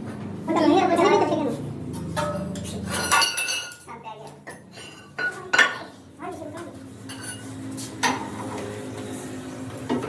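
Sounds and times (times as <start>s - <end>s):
metal objects clinking and knocking: 2.1s - 3.9s.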